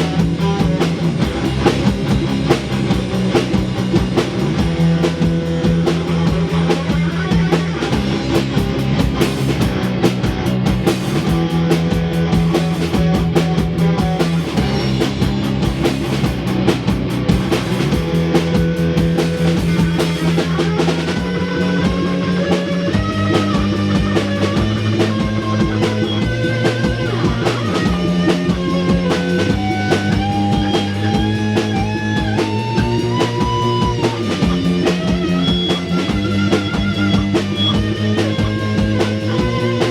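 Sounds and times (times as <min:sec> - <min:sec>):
lead guitar with pitch bends: 0:00.0 - 0:39.9
rock band playing live: 0:00.0 - 0:39.9.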